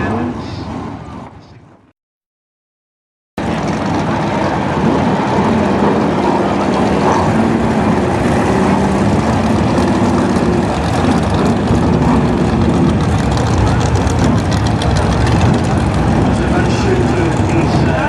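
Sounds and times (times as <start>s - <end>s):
stock car engines running: 3.4s - 18.0s.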